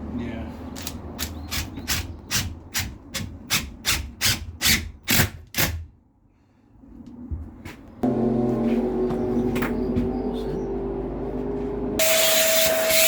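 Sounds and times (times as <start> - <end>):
hand saw cutting: 12.0 - 13.0.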